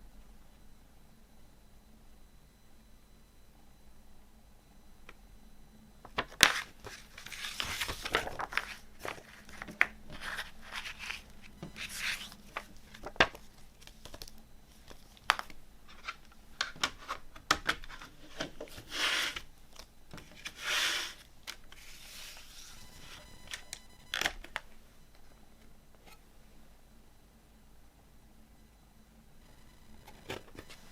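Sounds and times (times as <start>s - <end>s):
paper rustling: 6.1s - 16.3s, 20.2s - 22.8s.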